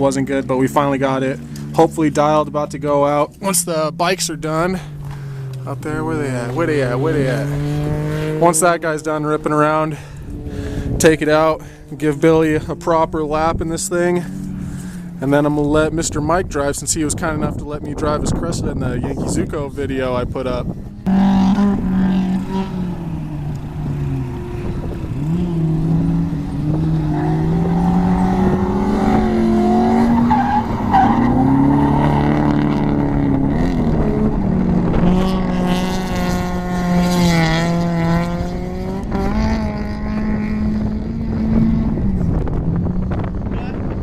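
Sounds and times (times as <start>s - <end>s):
engine revving: 0.0s - 44.0s
tyres squealing and skidding: 29.0s - 32.9s.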